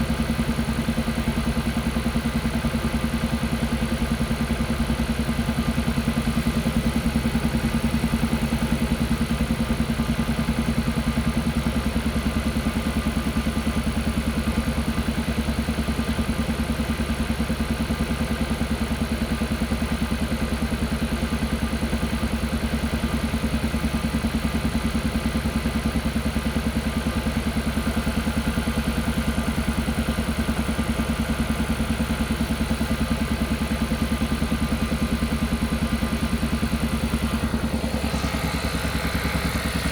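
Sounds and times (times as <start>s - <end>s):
car engine pulsing: 22.9s - 39.9s.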